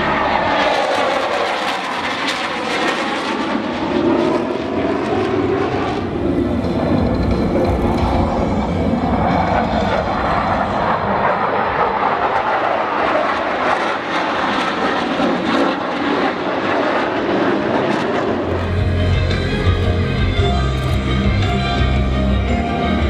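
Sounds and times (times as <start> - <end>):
aircraft engine rushing noise: 0.0 - 23.0.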